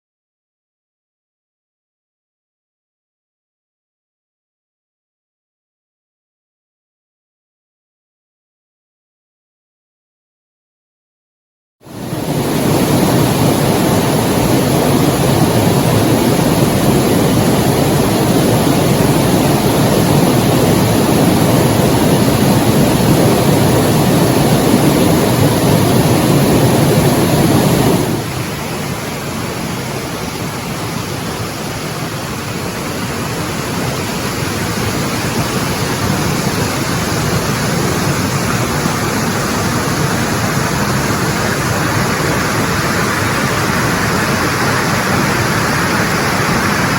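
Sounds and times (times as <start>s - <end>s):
waterfall rushing: 11.9s - 46.9s.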